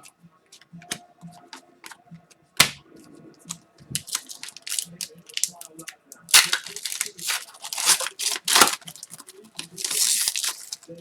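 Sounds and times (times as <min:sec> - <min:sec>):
cards clicking and rustling: 0:00.0 - 0:02.0, 0:02.6 - 0:02.8, 0:03.5 - 0:11.0
card snapping: 0:02.6 - 0:11.0.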